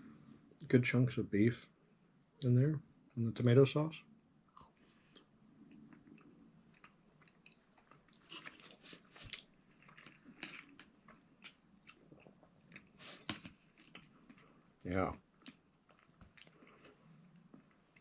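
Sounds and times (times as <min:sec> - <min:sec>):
faint chewing: 0:04.5 - 0:18.0.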